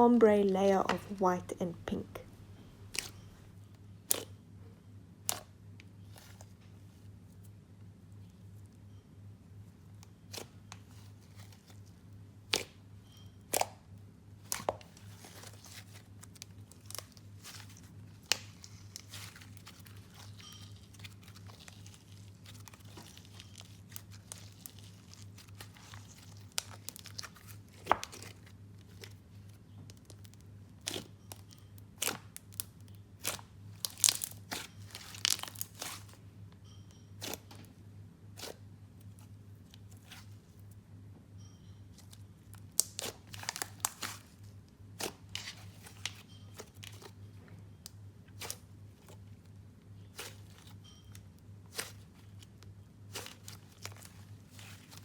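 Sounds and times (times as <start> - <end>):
steady low hum: 0.0 - 32.0
slime clicks and crackling pops: 32.0 - 36.1.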